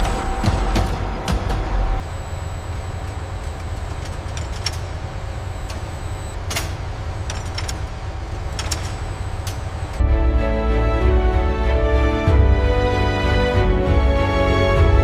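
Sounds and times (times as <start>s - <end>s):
music: 0.0s - 2.0s, 10.0s - 15.0s
factory machinery rumble: 0.0s - 15.0s.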